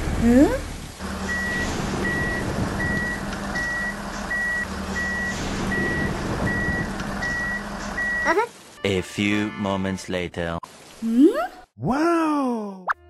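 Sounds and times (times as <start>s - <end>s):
low engine drone: 0.0s - 8.2s
reversing beeper: 1.2s - 8.3s.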